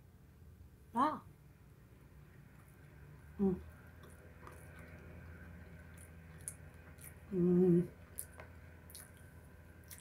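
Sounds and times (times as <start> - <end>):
wet chewing clicks: 2.5 - 10.0
woman humming closed-mouth: 7.3 - 8.0.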